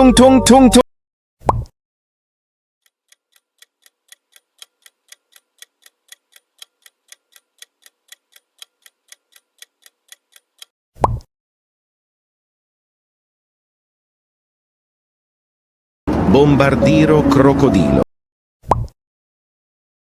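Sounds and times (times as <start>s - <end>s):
clock ticking: 2.8s - 10.7s.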